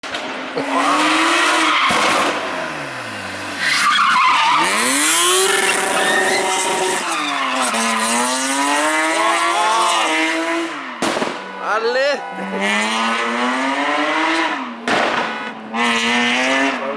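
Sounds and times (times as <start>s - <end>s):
rally car engine revving: 0.0s - 11.6s, 12.2s - 16.9s
tyre squeal: 3.0s - 8.2s.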